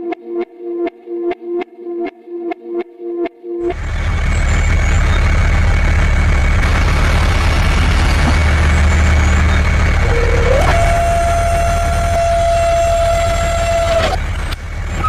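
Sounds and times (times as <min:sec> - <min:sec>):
music: 0:00.0 - 0:03.7
engine running with deep rumble: 0:03.7 - 0:15.0.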